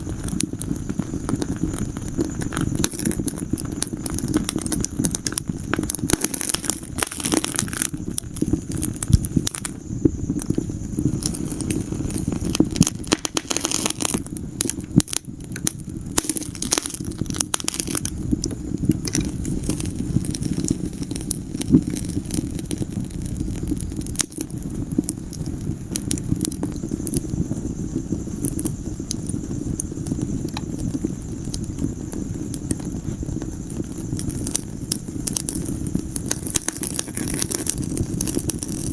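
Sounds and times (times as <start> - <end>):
low rumble of flames: 0.0 - 38.9
wood fire crackling and popping: 0.0 - 38.9.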